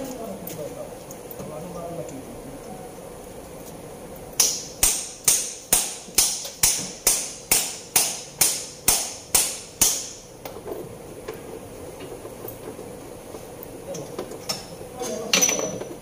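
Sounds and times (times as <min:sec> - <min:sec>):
hammer striking metal: 0:04.4 - 0:10.2.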